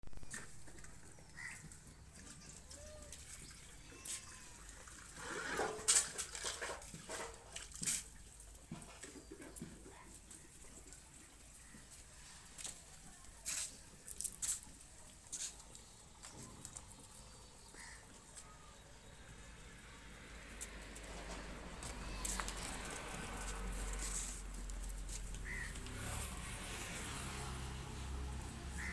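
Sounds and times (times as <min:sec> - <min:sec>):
goat kids bleating: 0:02.4 - 0:04.8, 0:21.8 - 0:23.5
light clicks and shuffles: 0:20.4 - 0:28.2.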